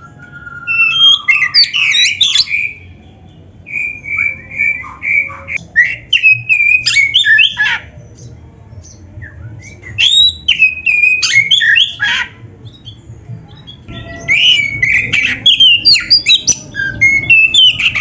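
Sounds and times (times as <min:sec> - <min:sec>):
bird singing varied song: 0:00.0 - 0:18.0.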